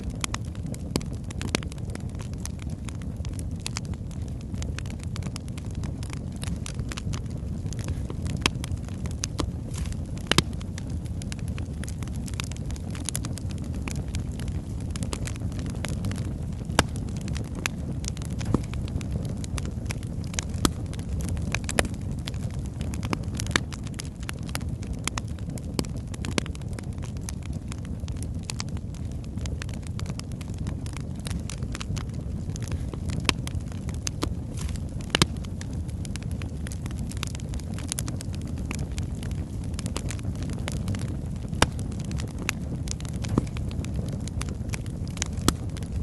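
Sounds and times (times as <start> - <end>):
fire rumbling: 0.0 - 46.0
logs crackling and popping: 0.0 - 46.0.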